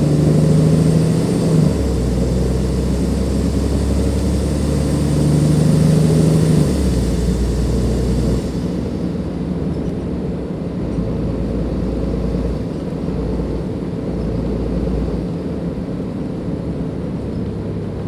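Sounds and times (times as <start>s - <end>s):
high turbo whistle: 0.0s - 9.3s
bus diesel engine under load: 0.0s - 18.0s.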